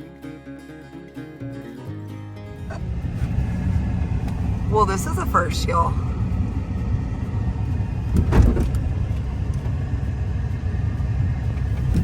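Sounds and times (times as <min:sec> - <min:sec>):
truck engine rumbling: 0:00.0 - 0:12.0
clunk: 0:08.1 - 0:09.7, 0:11.6 - 0:12.0.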